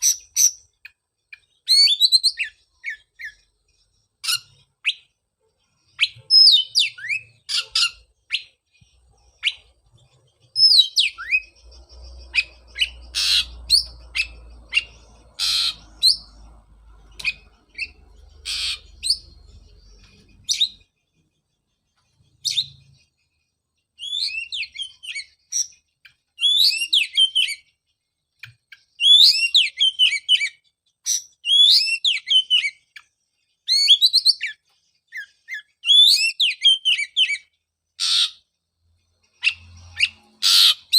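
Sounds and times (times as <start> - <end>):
bird singing whistles and rasps: 0.0 - 5.2, 5.8 - 21.0, 22.1 - 23.2, 23.9 - 38.4, 39.3 - 40.9.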